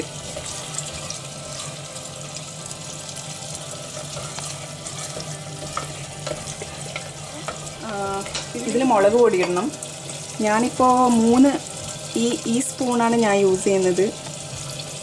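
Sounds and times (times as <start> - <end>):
wooden spoon stirring: 0.0 - 9.8
food sizzling in hot oil: 0.0 - 15.0.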